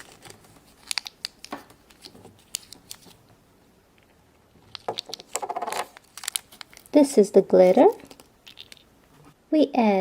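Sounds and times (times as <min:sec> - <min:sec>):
plastic toy parts clicking: 0:00.1 - 0:03.1, 0:04.7 - 0:06.9, 0:07.9 - 0:08.9.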